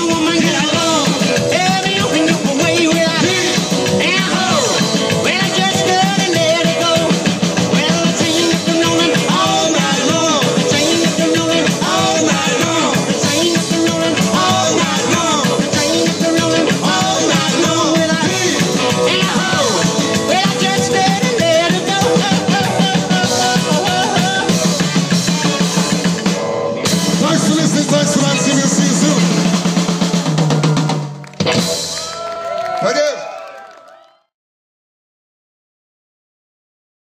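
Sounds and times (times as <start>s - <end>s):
rock and roll band playing: 0.0s - 33.8s.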